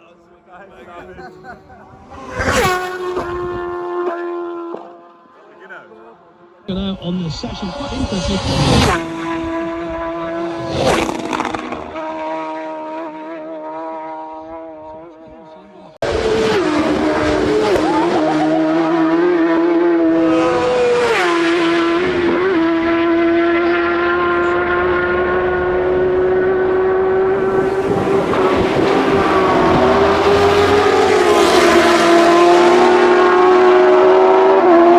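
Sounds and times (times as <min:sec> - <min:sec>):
racing motorcycle engine revving: 0:06.7 - 0:15.4, 0:16.0 - 0:34.9.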